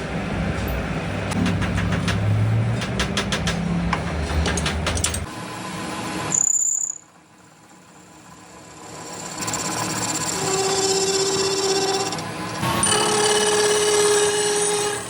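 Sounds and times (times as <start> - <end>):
workshop machinery humming: 0.0 - 15.0
machinery clicks and ticks: 1.3 - 5.3.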